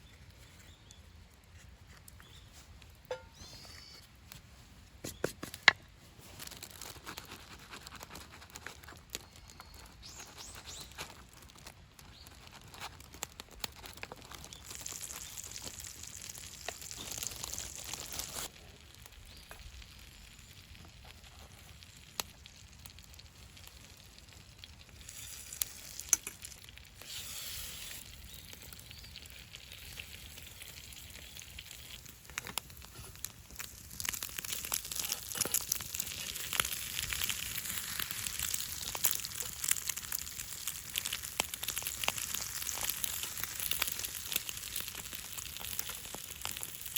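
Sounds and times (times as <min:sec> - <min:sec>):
campfire crackling and popping: 0:06.4 - 0:46.9.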